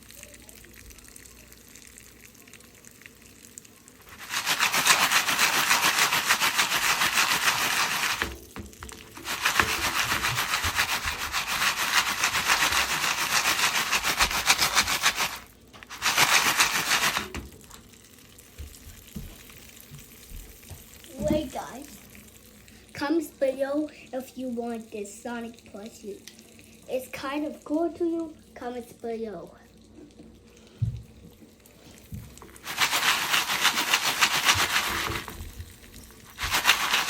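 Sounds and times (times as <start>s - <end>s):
popcorn pan shaken on burner: 4.1s - 17.4s, 32.5s - 37.0s.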